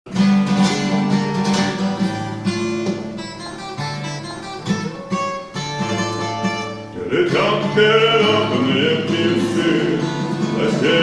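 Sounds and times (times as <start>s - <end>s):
plucked acoustic guitar: 0.1s - 11.0s.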